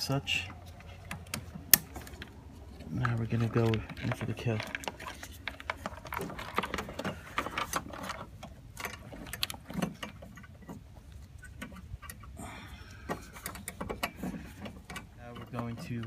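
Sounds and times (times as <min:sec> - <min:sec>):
plastic clicks and rattles: 0:01.0 - 0:12.3.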